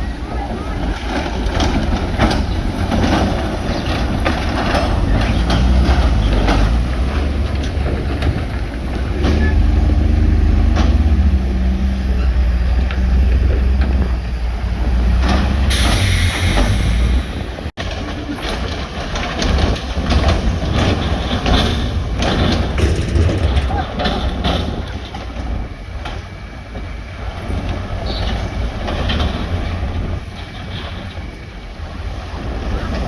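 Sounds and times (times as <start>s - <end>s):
heavy diesel machinery rumbling: 0.0s - 33.0s
loud air hiss: 15.7s - 17.7s.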